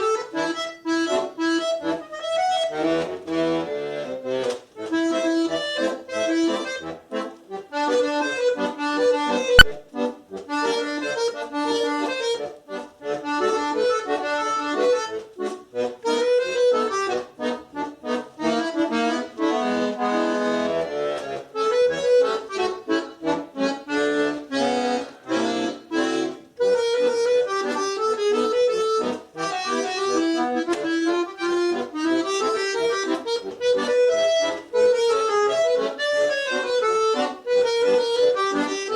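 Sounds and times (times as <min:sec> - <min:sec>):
solo accordion playing: 0:00.0 - 0:38.9
sharp click: 0:09.6 - 0:09.8.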